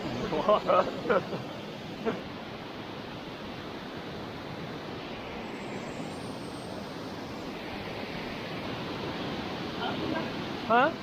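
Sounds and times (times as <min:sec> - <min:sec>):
waterfall roaring: 0:08.6 - 0:11.0.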